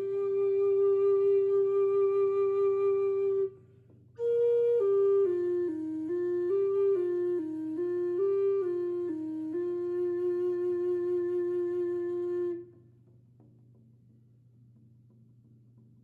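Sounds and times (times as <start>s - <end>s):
flute-like wind instrument: 0.0s - 3.6s, 4.2s - 12.8s.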